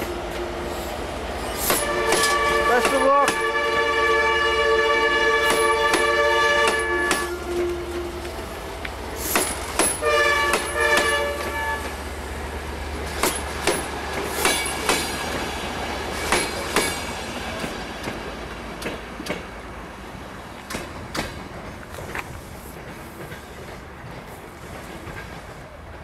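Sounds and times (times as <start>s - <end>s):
train wheels clicking over rail joints: 0.3s - 3.6s, 5.4s - 26.0s
train horn: 1.7s - 8.5s, 10.0s - 12.0s.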